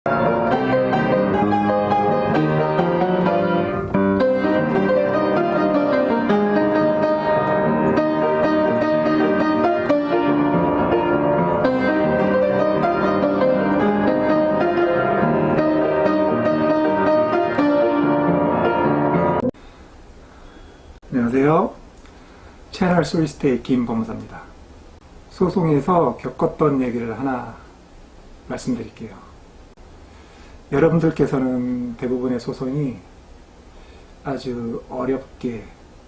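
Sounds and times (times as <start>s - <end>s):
piano music: 0.1s - 19.6s.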